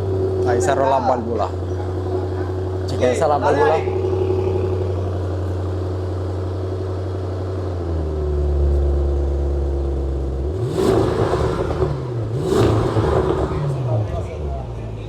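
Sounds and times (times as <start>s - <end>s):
car engine idling: 0.0s - 15.0s
engine revving blips: 10.5s - 14.7s.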